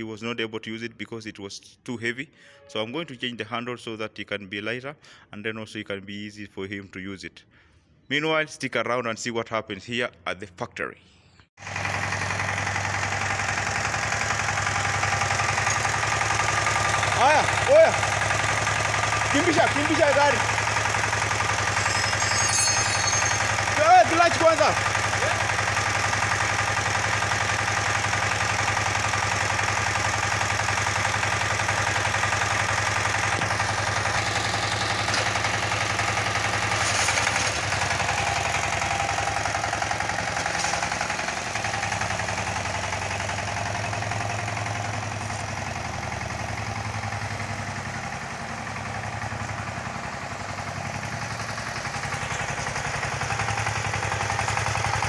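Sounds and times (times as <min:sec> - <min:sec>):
walking tractor engine running: 0:11.6 - 0:55.0.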